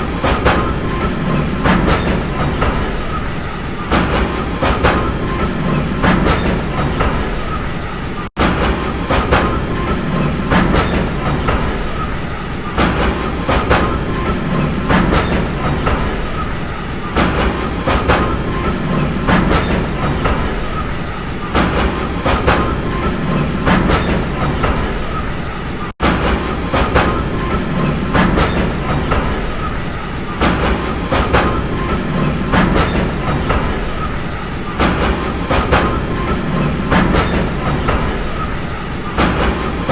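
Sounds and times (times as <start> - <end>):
train rumble: 0.0 - 39.9
train wheels clickety-clack: 0.0 - 39.9.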